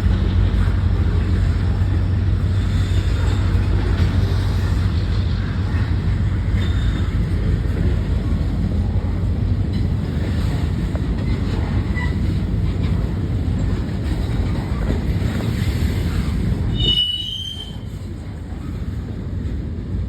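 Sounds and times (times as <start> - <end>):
freight train rumbling past: 0.0 - 20.0
high-pitched wheel squeal: 6.6 - 7.2, 16.7 - 17.9.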